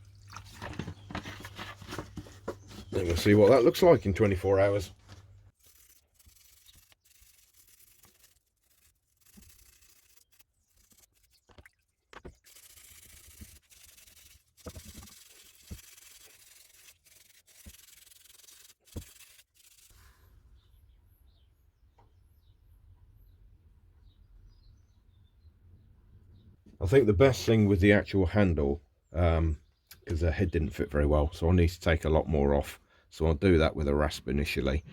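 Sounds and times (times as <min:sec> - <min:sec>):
sandpaper rubbing: 0:05.5 - 0:11.6, 0:12.2 - 0:20.1.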